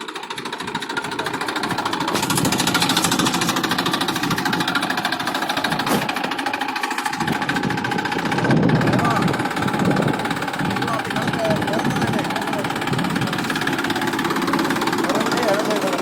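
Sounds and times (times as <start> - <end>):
tractor diesel engine knocking: 0.0 - 16.0.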